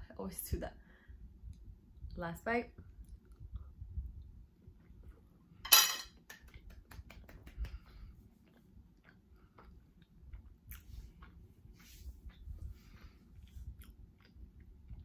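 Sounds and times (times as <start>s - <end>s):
metal fork clinking on ceramic plate: 5.7s - 6.2s
chewing with wet mouth clicks: 6.4s - 11.5s, 12.2s - 12.7s, 13.4s - 15.0s.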